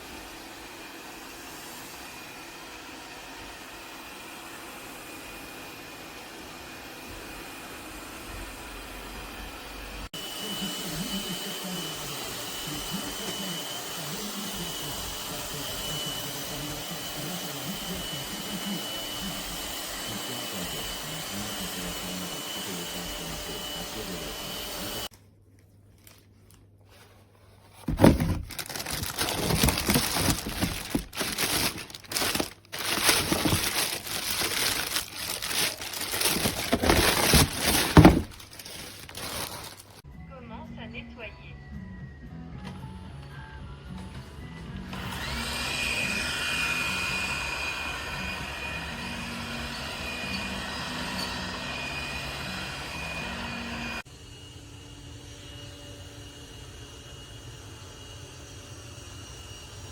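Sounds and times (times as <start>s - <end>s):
robot vacuum motor whining: 27.9s - 40.0s.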